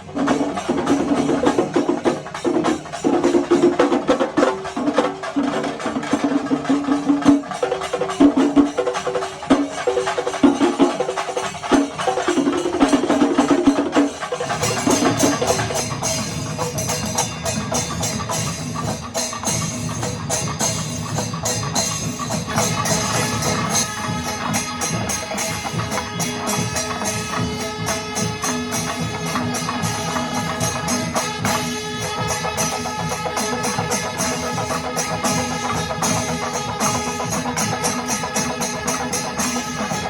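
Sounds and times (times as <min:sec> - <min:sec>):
fast dense drumming: 0:00.0 - 0:40.0
hand cymbals clashing: 0:00.0 - 0:40.0
wind instrument phrases: 0:09.3 - 0:40.0.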